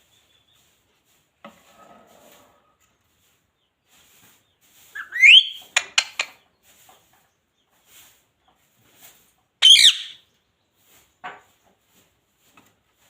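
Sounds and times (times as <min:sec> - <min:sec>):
parrot rising whistle: 0:05.0 - 0:05.6, 0:09.6 - 0:10.2
parrot sharp calls: 0:05.0 - 0:06.3, 0:09.6 - 0:10.2.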